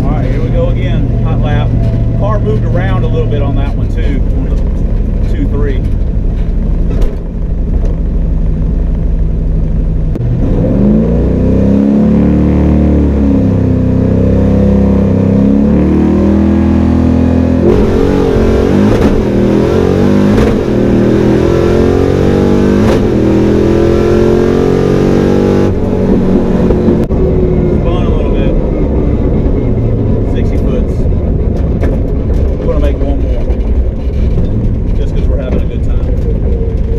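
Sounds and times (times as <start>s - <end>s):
car engine accelerating hard: 10.1s - 36.9s.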